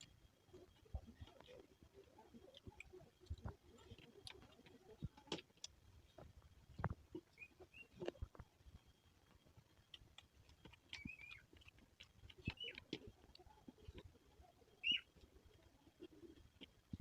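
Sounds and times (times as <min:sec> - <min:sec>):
person chewing food: 0:00.0 - 0:17.0
small wet clicks: 0:00.0 - 0:17.0.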